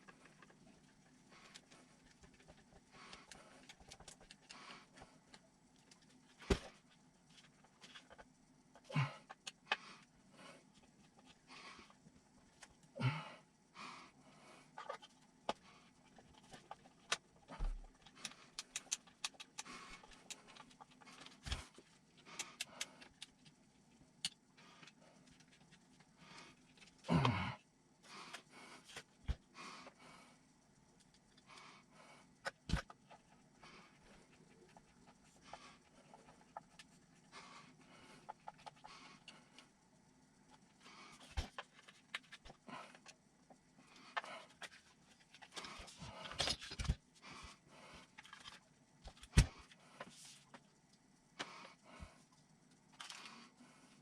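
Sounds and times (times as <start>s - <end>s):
small parts and tools handled: 14.7s - 23.6s, 38.2s - 39.6s, 40.5s - 47.1s, 48.0s - 50.8s.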